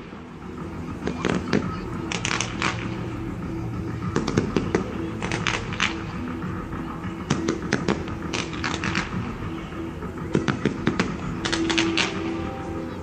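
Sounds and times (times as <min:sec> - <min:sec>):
fireworks crackling and popping: 0:01.0 - 0:03.1, 0:04.1 - 0:06.2, 0:07.2 - 0:09.4, 0:10.3 - 0:12.3.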